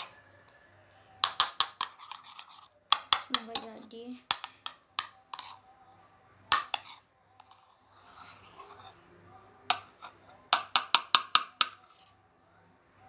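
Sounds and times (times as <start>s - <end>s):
small objects tapping and clicking: 1.2s - 2.3s, 2.9s - 5.5s, 10.5s - 12.0s.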